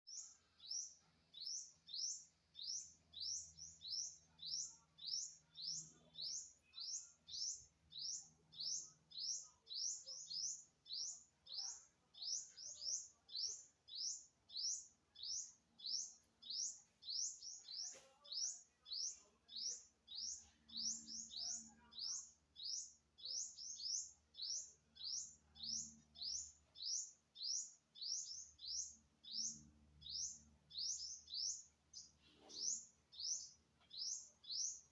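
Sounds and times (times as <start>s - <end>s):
bird chirping: 0.1s - 34.9s.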